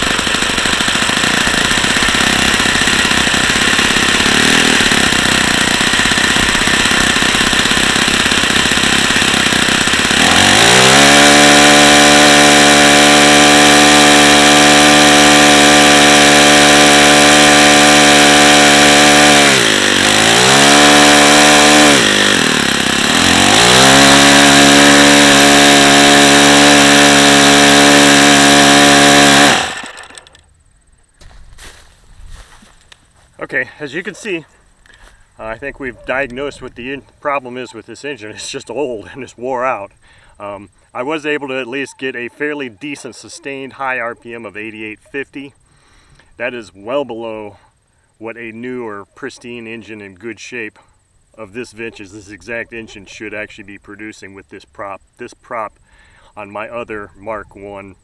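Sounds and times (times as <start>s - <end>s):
model engine running: 0.0s - 30.4s.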